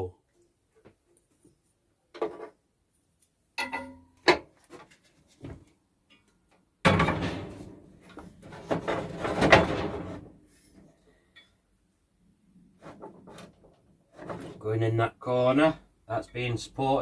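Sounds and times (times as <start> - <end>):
scraping and rattling: 6.9 - 10.4, 12.8 - 14.6.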